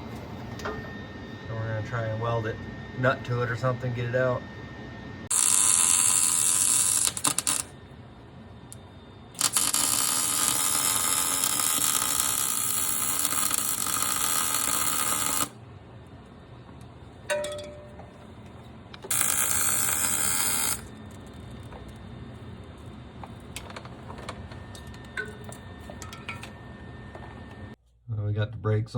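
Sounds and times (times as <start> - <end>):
welder arc crackling and buzzing: 5.2 - 8.0, 8.7 - 17.2, 18.1 - 27.8.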